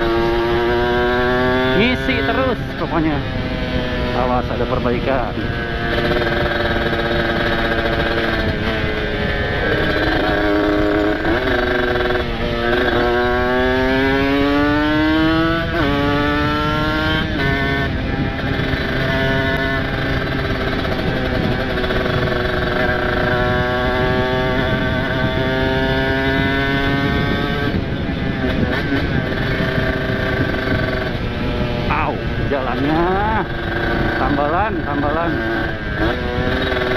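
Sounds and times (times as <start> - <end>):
two-stroke motorcycle engine accelerating: 0.0 - 36.9.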